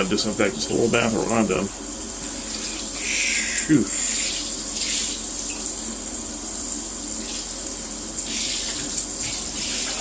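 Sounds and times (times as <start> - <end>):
shower water running: 0.0 - 10.0.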